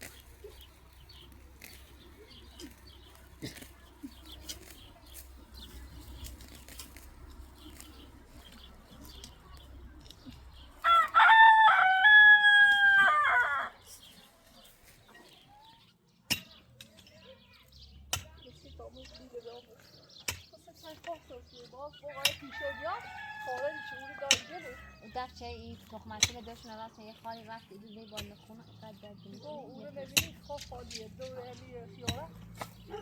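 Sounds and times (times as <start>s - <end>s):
rooster crowing: 10.8s - 13.8s, 22.4s - 25.1s.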